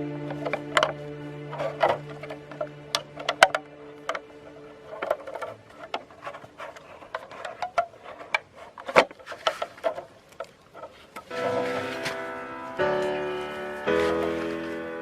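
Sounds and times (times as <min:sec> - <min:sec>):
music with sustained notes: 0:00.0 - 0:08.2, 0:11.2 - 0:15.0.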